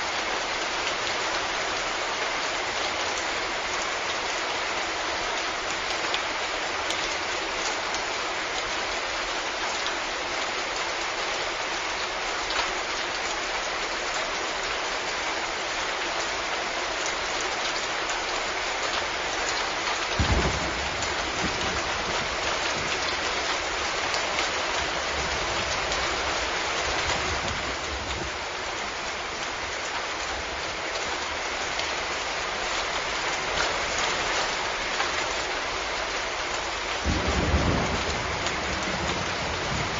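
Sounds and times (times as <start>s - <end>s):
rain pattering: 0.0s - 39.9s
thunder crack and rumble: 20.2s - 23.3s, 24.8s - 28.4s, 37.0s - 39.9s.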